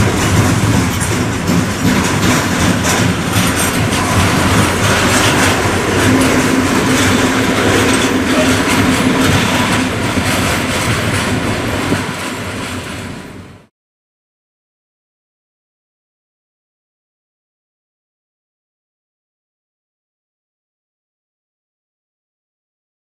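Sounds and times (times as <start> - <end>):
wheels clicking over rail joints: 0.0 - 13.4
train wagons rolling past: 0.0 - 13.7.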